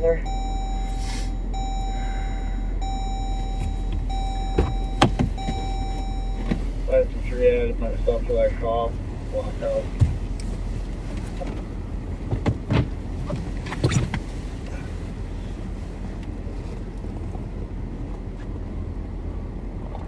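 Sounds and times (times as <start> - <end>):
car engine idling: 0.0 - 20.0
short thumps: 3.2 - 6.7, 9.9 - 10.3.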